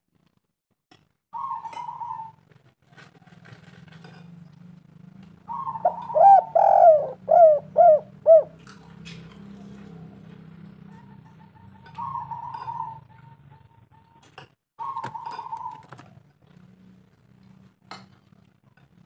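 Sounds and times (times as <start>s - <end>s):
dove cooing: 1.4s - 2.4s, 5.4s - 8.8s, 9.5s - 14.2s, 14.8s - 16.6s.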